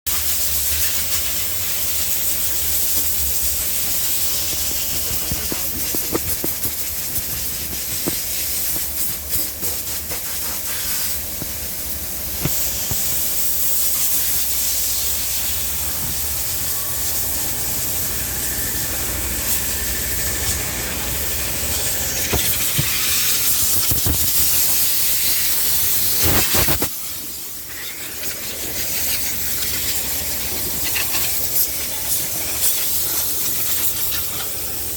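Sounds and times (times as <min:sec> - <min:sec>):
water jets spraying: 0:00.1 - 0:34.9
low machinery hum: 0:02.0 - 0:26.0.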